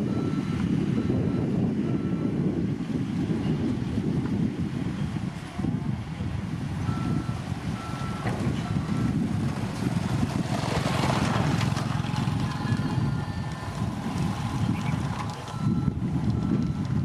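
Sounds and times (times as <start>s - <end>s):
reversing alarm beeps: 0.0s - 2.5s, 6.8s - 9.3s, 12.3s - 17.0s
heavy diesel machinery rumbling: 0.0s - 17.0s.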